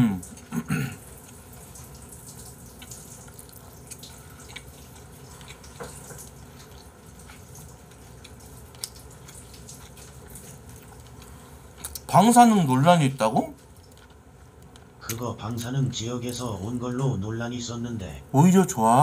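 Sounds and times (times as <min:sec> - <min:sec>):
faint steady hum: 0:00.0 - 0:19.0
person chewing food: 0:00.3 - 0:12.1, 0:13.6 - 0:15.6.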